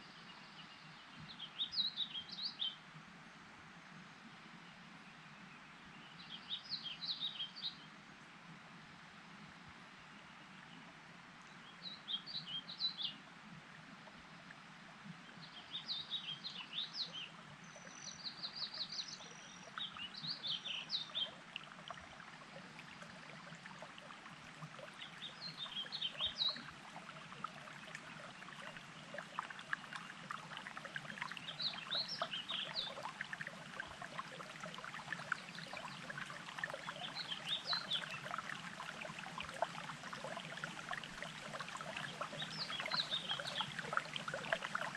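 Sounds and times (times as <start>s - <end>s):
songbird singing: 0.0s - 2.8s, 4.6s - 7.9s, 11.5s - 13.2s, 15.2s - 44.9s
running water burbling: 15.0s - 44.9s.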